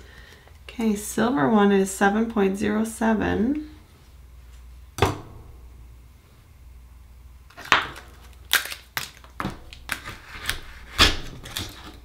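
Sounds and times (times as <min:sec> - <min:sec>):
oyster shells clicking and cracking: 0:07.6 - 0:10.6.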